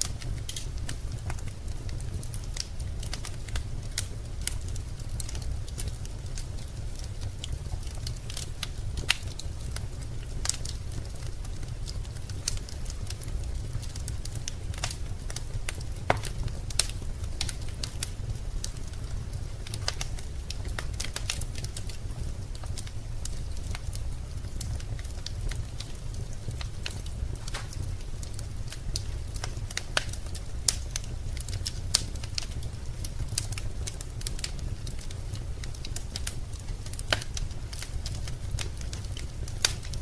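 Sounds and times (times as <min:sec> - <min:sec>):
low fire rumble: 0:00.0 - 0:40.0
wood fire crackling and popping: 0:00.0 - 0:40.0.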